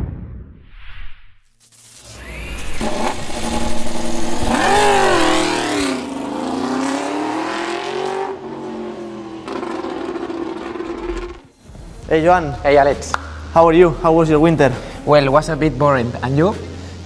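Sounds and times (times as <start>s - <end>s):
motorcycle engine revving: 2.2s - 11.5s.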